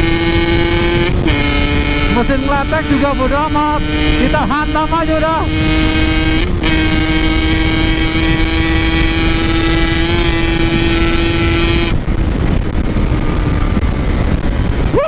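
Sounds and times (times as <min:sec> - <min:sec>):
motorcycle engine at high revs: 0:00.0 - 0:15.0
wind rumble on microphone: 0:00.0 - 0:15.0
person talking: 0:02.0 - 0:05.7.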